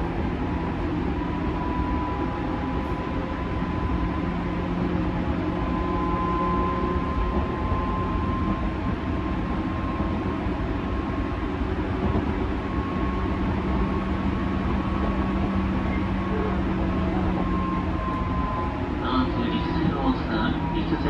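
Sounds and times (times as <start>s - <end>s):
wheels rumbling on rail: 0.0s - 21.0s.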